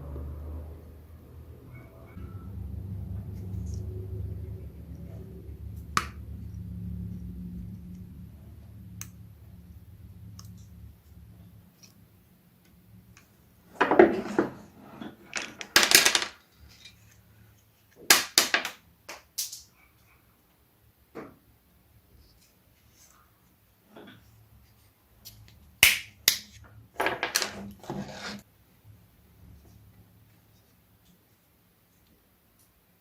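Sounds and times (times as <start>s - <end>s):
low machine hum: 0.0s - 11.7s
metal parts clattering: 15.2s - 16.4s.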